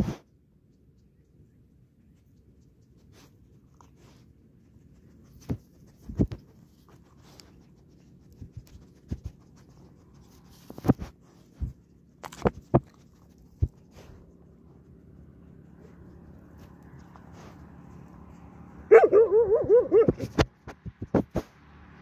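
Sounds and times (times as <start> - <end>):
dogs crunching dry food: 6.4 - 15.0.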